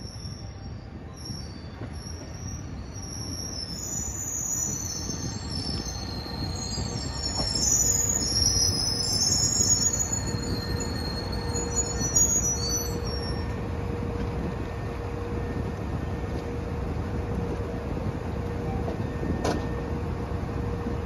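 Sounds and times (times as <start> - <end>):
brake squeals: 0.0 - 14.2
railcar running gear rumbling: 0.0 - 21.0.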